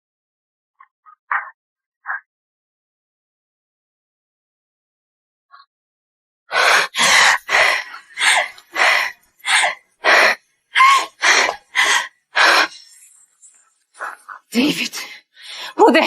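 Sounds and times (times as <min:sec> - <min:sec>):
person gasping loudly: 0:06.6 - 0:12.8.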